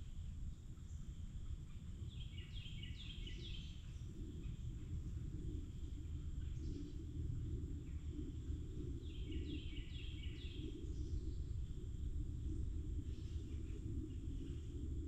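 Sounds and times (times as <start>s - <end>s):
birdsong: 0.8s - 11.8s
low rumble: 3.8s - 15.0s.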